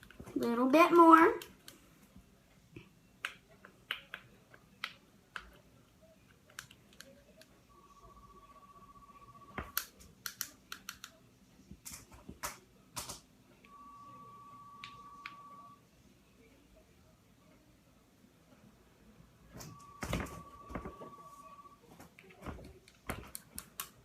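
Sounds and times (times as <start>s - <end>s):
electronic beep tone: 13.7s - 15.8s, 19.6s - 21.8s.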